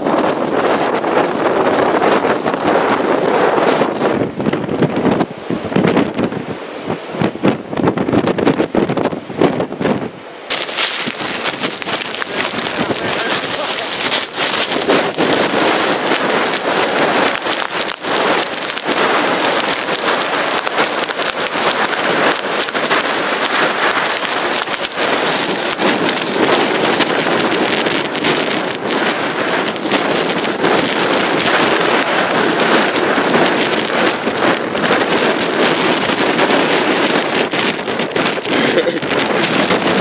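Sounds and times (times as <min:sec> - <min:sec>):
blizzard wind hissing: 0:00.0 - 0:40.0
snow pattering on microphone: 0:00.0 - 0:40.0.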